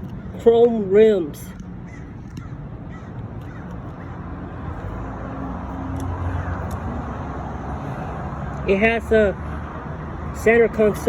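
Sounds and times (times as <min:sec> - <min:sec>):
road traffic rumble: 0:00.0 - 0:11.0
vehicle passing by: 0:02.6 - 0:11.0.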